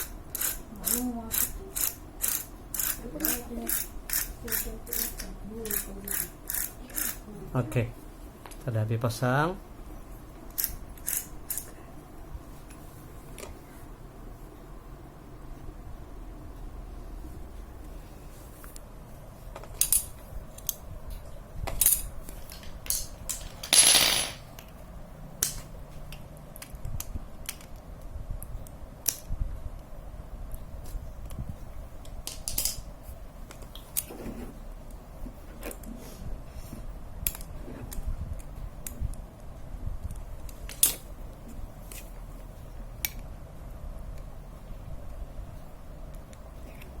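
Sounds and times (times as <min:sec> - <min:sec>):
metallic clicks of tools: 0:00.3 - 0:07.2.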